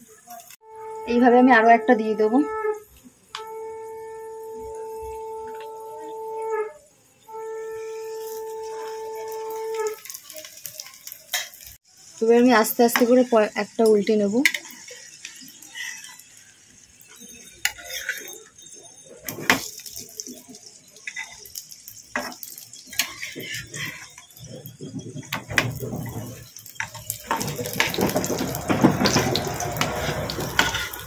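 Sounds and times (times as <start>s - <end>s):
flatbread sizzling in oil: 0.0s - 31.0s
metal spatula scraping pan: 7.8s - 11.7s, 14.4s - 20.4s, 21.0s - 31.0s.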